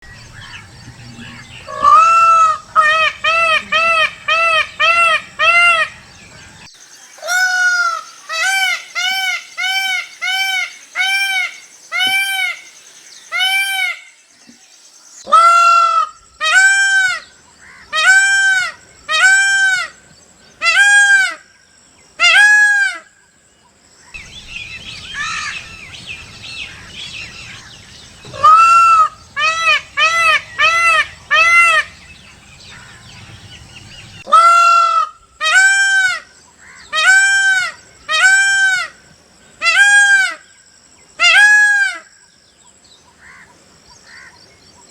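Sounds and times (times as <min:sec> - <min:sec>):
peacock honking calls: 0:00.0 - 0:12.7, 0:13.3 - 0:14.2, 0:15.3 - 0:20.0, 0:20.6 - 0:21.5, 0:24.2 - 0:39.0, 0:41.2 - 0:42.1
background noise: 0:00.0 - 0:44.9.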